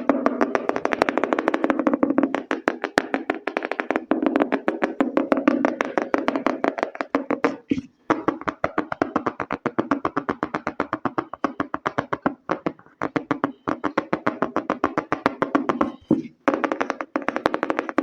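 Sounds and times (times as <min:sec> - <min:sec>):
fast tapping on hard object: 0:00.0 - 0:18.0.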